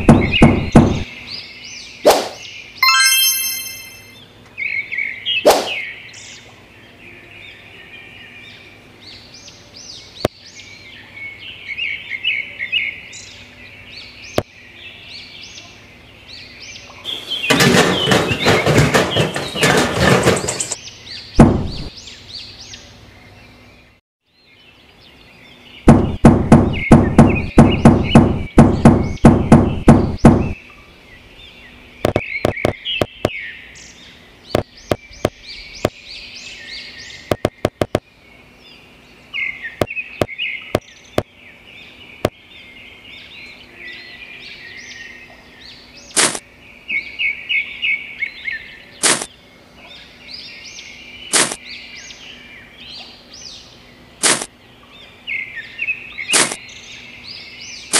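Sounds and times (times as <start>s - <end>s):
rapid sharp knocks: 0.0s - 1.0s, 17.5s - 20.8s, 21.4s - 21.9s, 25.9s - 30.6s, 32.1s - 33.1s, 37.3s - 38.0s
birds chirping: 0.0s - 57.9s
loud rustling: 17.1s - 20.8s.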